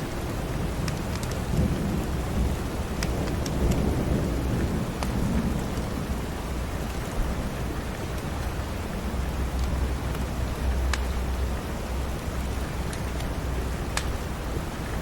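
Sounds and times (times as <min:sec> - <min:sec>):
steady rain: 0:00.0 - 0:15.0
rolling thunder rumble: 0:01.4 - 0:07.8
wood fire crackling: 0:12.4 - 0:14.2.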